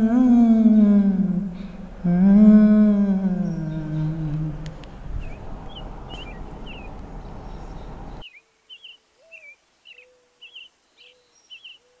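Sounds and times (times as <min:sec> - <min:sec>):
small birds chirping: 0:00.0 - 0:12.0
steady rushing noise: 0:01.2 - 0:08.2.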